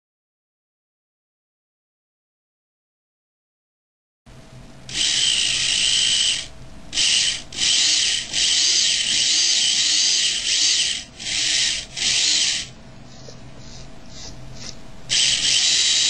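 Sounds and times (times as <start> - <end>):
electric motor whining: 4.9 - 12.8, 13.6 - 16.0.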